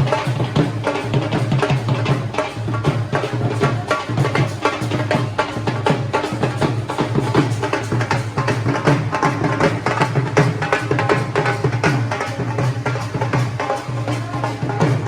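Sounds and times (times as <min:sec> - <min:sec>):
drums beaten in fast rhythm: 0:00.0 - 0:15.0.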